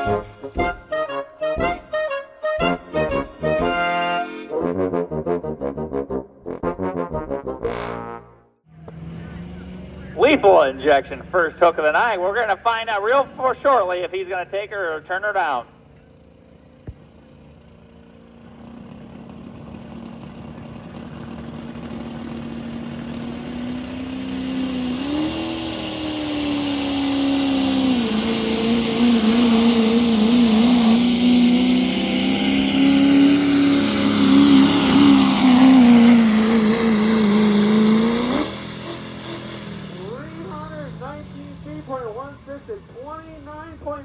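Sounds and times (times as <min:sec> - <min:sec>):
diesel tractor engine at full throttle: 0:00.0 - 0:04.7, 0:08.7 - 0:44.0.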